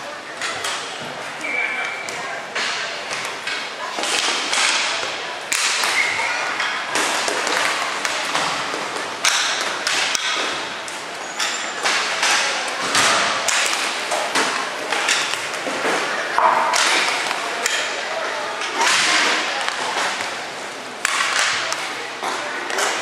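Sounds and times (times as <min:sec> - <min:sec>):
hockey sticks and puck clacking: 0:00.3 - 0:23.0
puck hitting the boards: 0:02.5 - 0:10.8, 0:11.8 - 0:18.0, 0:21.0 - 0:23.0.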